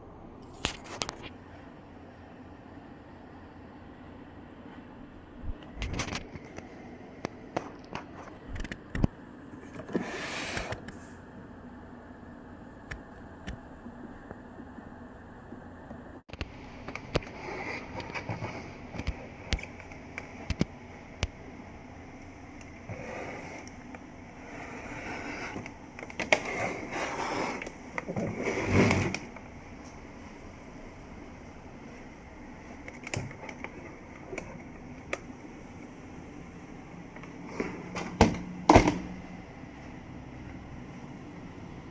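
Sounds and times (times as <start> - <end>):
plastic scraping: 16.4 - 20.7, 22.6 - 29.6.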